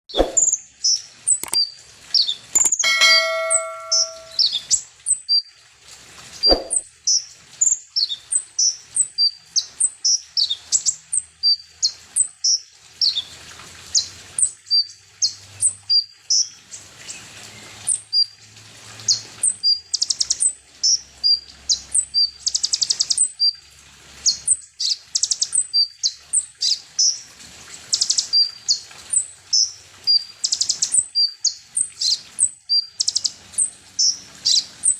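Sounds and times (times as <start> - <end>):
bird chirping and trilling: 2.6 - 4.5, 6.5 - 6.8
brief ringing tone: 2.8 - 4.4.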